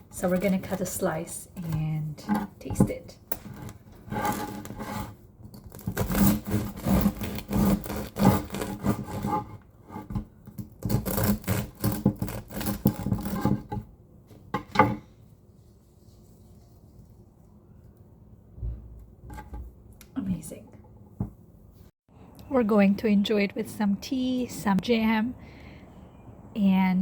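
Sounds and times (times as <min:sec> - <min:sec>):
bread knife sawing through crust: 0:03.5 - 0:09.6, 0:10.8 - 0:13.7.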